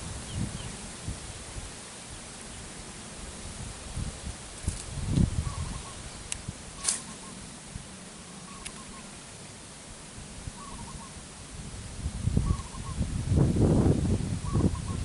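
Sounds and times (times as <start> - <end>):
bird calling: 5.4 - 6.2, 6.8 - 7.6, 8.2 - 9.3, 10.5 - 11.2, 12.4 - 13.0, 14.4 - 15.0.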